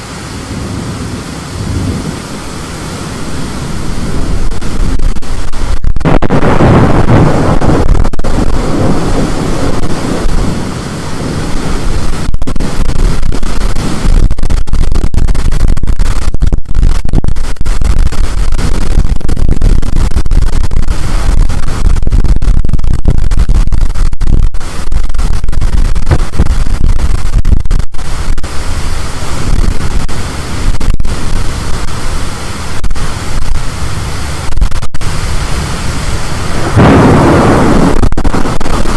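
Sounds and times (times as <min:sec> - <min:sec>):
rain blasting against microphone: 0:00.0 - 0:38.9
storm wind: 0:00.0 - 0:38.9.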